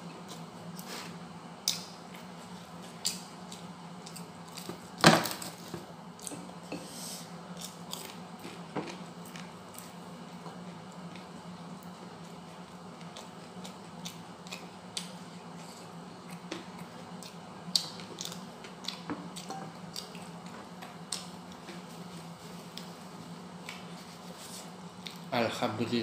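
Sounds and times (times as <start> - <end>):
steady low hum: 0.0 - 26.0
chewing fried fish: 7.5 - 21.7.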